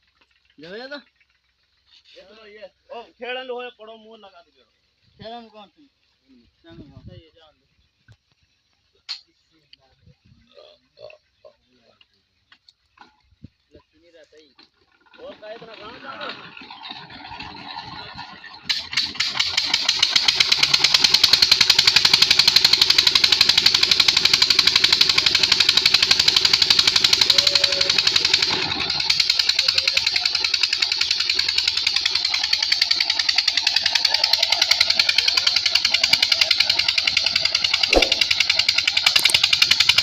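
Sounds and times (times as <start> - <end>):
engine starting and running: 14.6 - 40.0.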